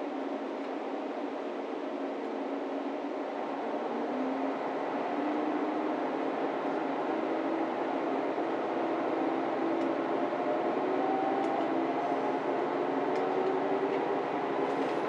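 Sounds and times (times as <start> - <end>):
diesel railcar running: 10.8 - 15.0.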